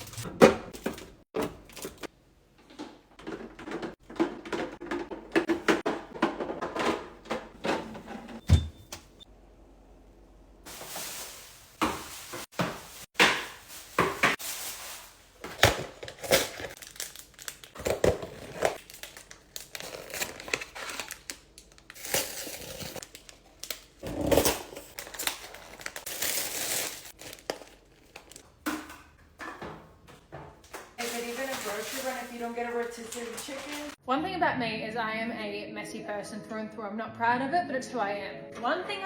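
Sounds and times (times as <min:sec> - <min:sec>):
rustling: 0:10.7 - 0:16.8, 0:31.0 - 0:34.0
packaging crinkling and tearing: 0:13.6 - 0:28.4, 0:31.0 - 0:34.0.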